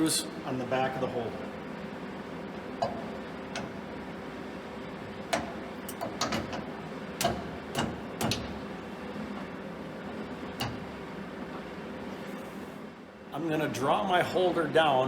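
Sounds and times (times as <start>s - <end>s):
sharp metal clicks and taps: 5.3s - 8.6s, 10.6s - 10.8s.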